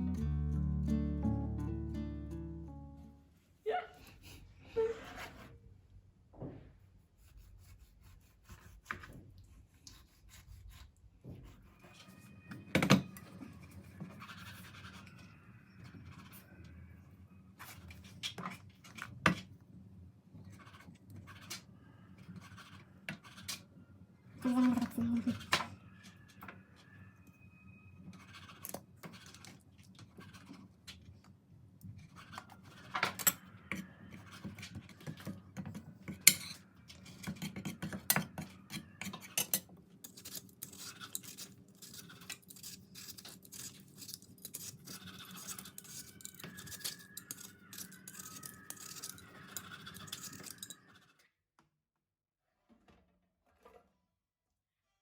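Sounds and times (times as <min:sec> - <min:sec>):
small objects clicking and knocking: 0:35.0 - 0:51.0.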